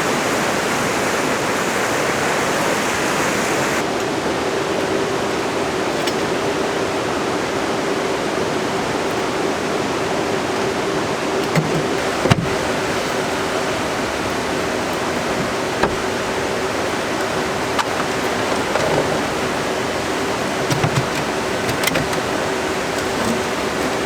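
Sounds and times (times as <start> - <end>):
faint steady hum: 0.0 - 11.4
heavy rain falling: 0.0 - 24.0.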